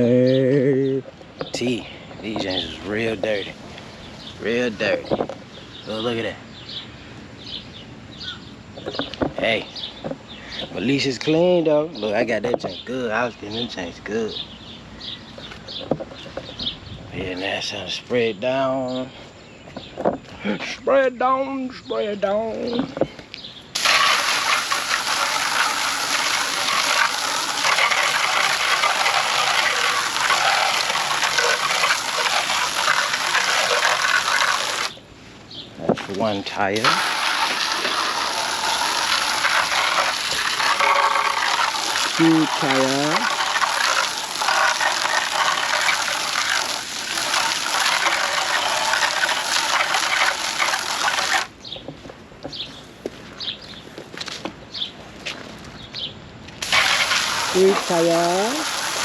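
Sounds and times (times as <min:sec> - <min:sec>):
water spray rushing hiss: 0:23.8 - 0:35.0, 0:36.8 - 0:51.5, 0:56.6 - 0:59.0.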